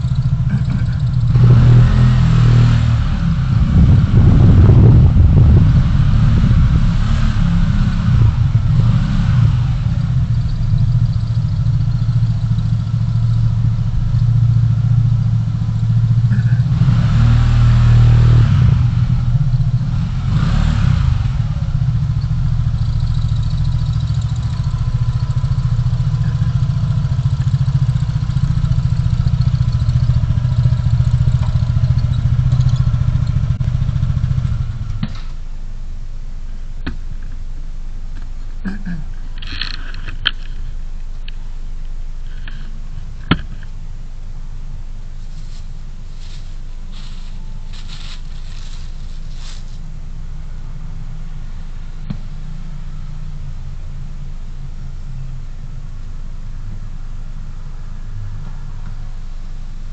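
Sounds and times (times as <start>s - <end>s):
car driving rumble: 0.0s - 59.9s
vehicles passing close by: 0.0s - 59.9s.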